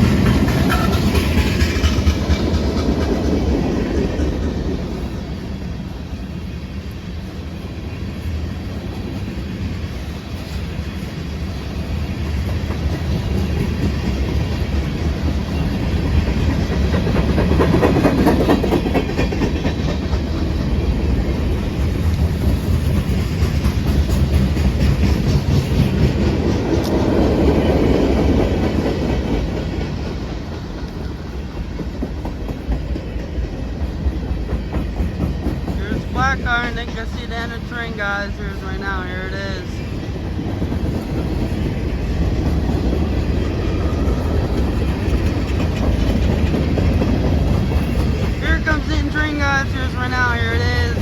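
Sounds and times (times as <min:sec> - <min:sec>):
wheels clacking over rail joints: 0:00.0 - 0:05.4, 0:09.0 - 0:39.0, 0:39.7 - 0:51.0
freight train rolling past: 0:00.0 - 0:51.0.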